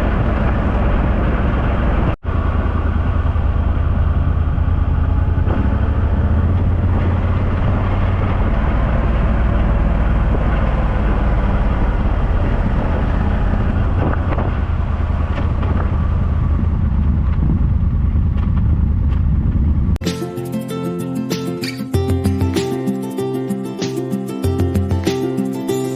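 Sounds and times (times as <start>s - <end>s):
motorcycle engine droning: 0.0s - 19.9s
road noise: 0.0s - 25.9s
music: 20.0s - 25.9s.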